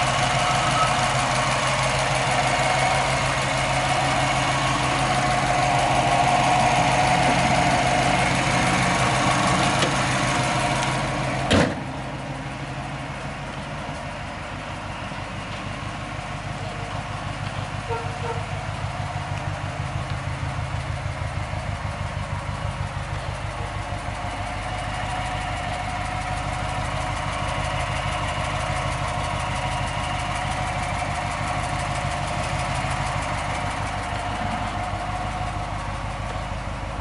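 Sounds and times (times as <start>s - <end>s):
car engine idling: 0.0s - 37.0s
car hood shutting thump: 11.5s - 11.8s.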